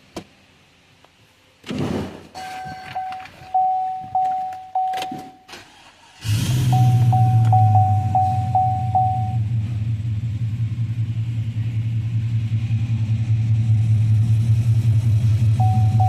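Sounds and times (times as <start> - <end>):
dashboard warning chime: 2.4 - 5.5, 6.6 - 9.5, 15.5 - 16.0
truck engine idling: 5.7 - 16.0.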